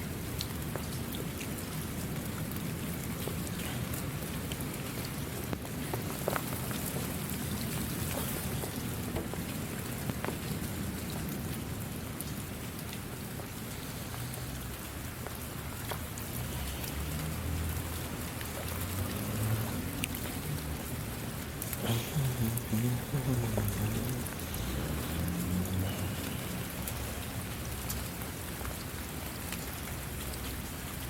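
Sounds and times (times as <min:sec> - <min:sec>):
steady rainfall: 0:00.0 - 0:31.0
drops ticking on a surface: 0:00.4 - 0:11.4.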